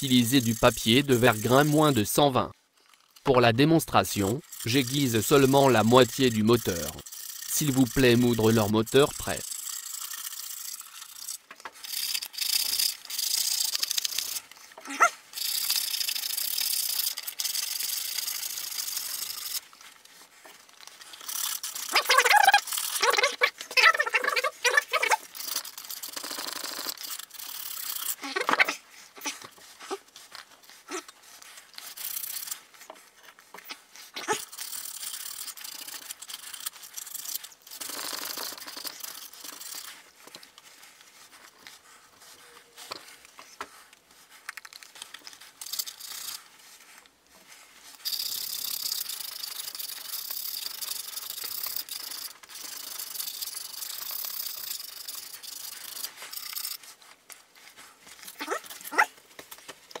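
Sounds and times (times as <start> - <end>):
sandpaper rubbing on metal: 0.0 - 2.1, 4.0 - 19.7, 20.8 - 32.8.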